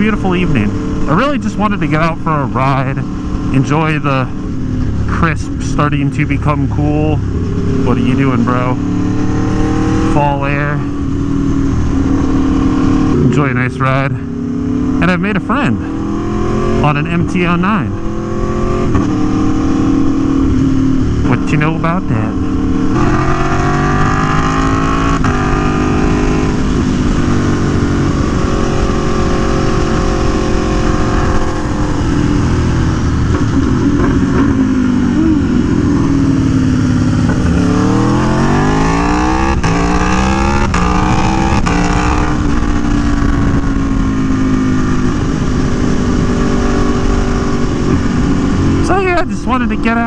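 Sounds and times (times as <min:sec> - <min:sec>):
motorcycle engine: 0:00.0 - 0:50.0
wind noise: 0:22.1 - 0:49.9.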